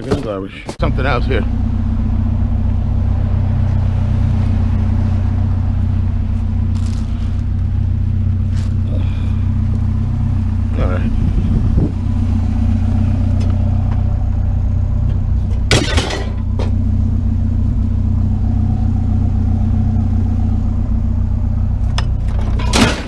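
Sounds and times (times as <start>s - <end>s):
truck engine rumbling: 0.0s - 23.0s
sharp metallic clank: 15.7s - 16.8s, 21.9s - 23.0s.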